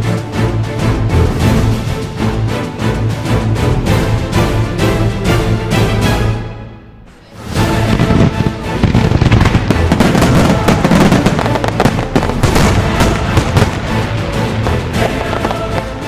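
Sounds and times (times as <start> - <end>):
music: 0.0 - 16.0
fireworks bangs and crackles: 7.6 - 16.0.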